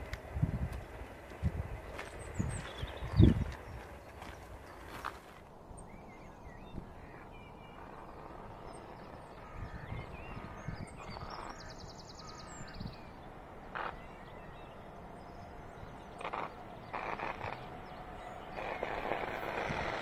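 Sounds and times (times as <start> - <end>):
low steady rumble: 0.0 - 20.0
small birds chirping: 0.0 - 20.0
bird trill: 5.8 - 20.0.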